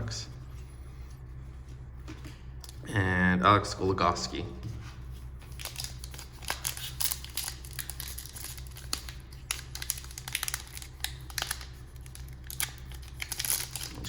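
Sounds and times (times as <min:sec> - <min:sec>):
steady low hum: 0:00.0 - 0:14.0
card pack wrapper crinkling: 0:05.5 - 0:14.0.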